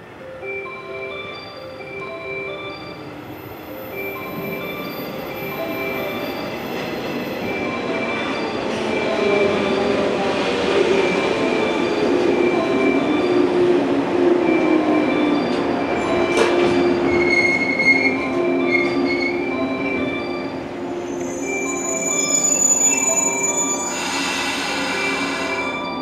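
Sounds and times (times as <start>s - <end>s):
train wheels rolling: 3.3s - 26.0s
train brake squeal: 16.4s - 19.5s, 21.0s - 26.0s.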